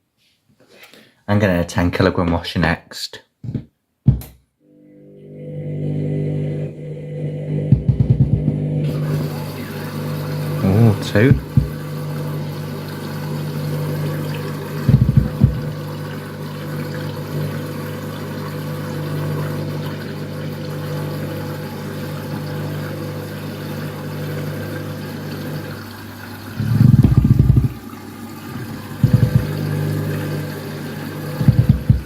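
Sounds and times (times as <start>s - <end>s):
washing machine motor humming: 4.7s - 32.0s
loud thumps from washing machine drum: 7.7s - 8.6s, 11.3s - 11.8s, 14.8s - 15.8s, 26.6s - 27.8s, 29.0s - 29.8s, 31.4s - 32.0s.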